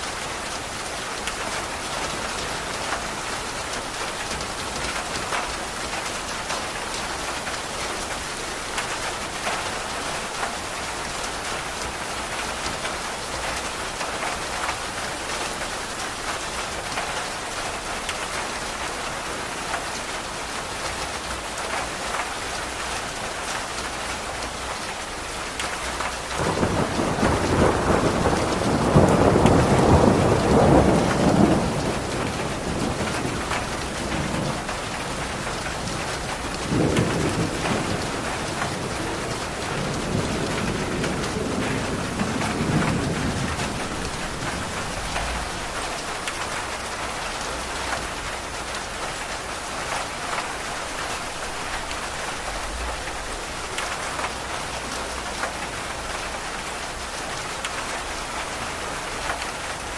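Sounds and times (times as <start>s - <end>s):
rain pattering: 0.0s - 59.9s
thunder rolling: 26.4s - 46.1s.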